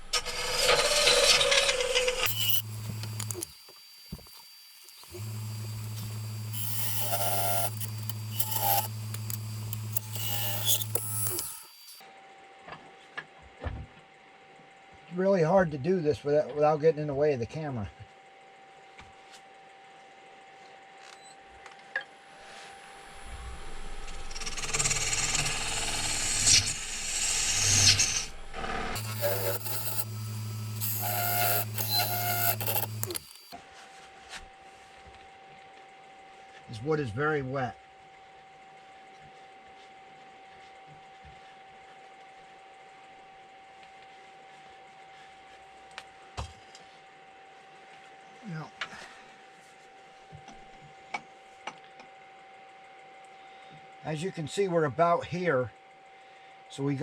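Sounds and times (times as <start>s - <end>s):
wood lathe humming: 0.0s - 12.0s, 28.9s - 33.6s
turning tool scraping wood: 0.4s - 12.0s, 29.0s - 33.6s.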